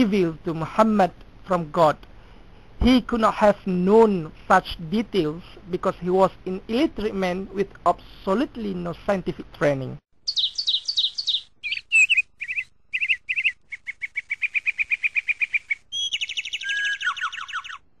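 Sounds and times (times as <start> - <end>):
bird song chirps and trills: 10.2 - 17.9.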